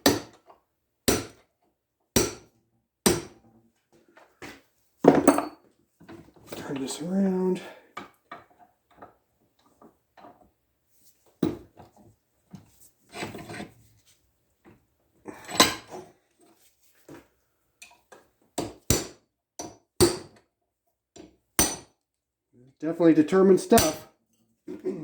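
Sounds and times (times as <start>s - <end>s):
metal-on-metal knocks and clinks: 5.0s - 5.6s.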